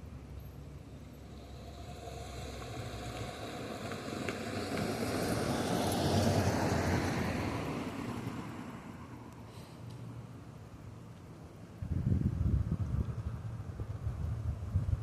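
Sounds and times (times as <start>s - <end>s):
car driving past: 0.7s - 9.3s.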